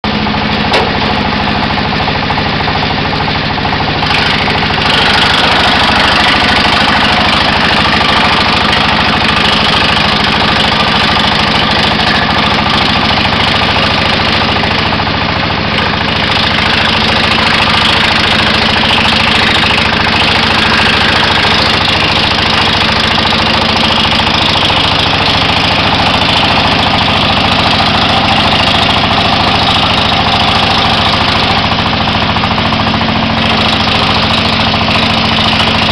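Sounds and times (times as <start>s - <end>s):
wood chipper engine running: 0.0s - 35.9s.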